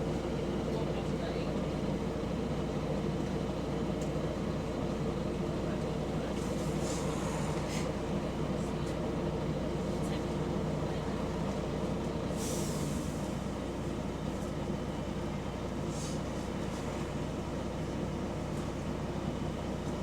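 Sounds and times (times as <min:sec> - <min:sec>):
bus engine running: 0:00.0 - 0:20.0
leaking exhaust drone: 0:06.4 - 0:08.3.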